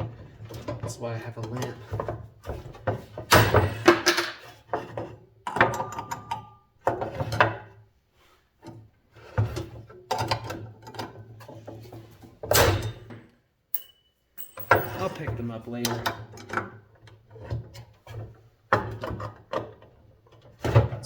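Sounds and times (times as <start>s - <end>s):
metal tools clattering: 3.3s - 4.5s, 12.5s - 15.7s.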